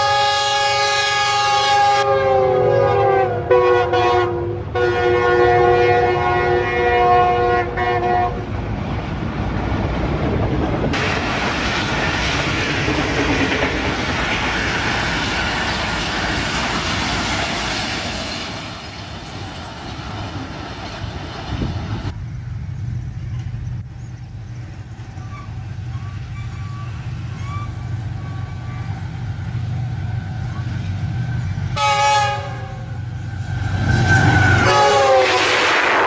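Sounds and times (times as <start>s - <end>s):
train horn chord: 0.0s - 8.5s, 31.8s - 33.0s, 34.4s - 35.8s.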